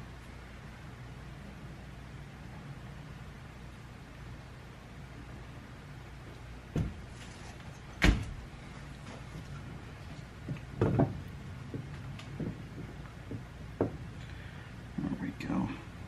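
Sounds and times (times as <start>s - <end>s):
steady low hum: 0.0s - 16.0s
wooden boards knocking: 10.4s - 14.1s.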